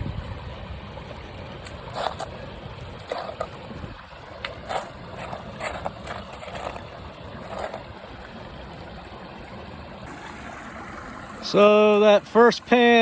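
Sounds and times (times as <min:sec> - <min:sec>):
gravel splashing and rattling in pan: 0:01.6 - 0:08.0.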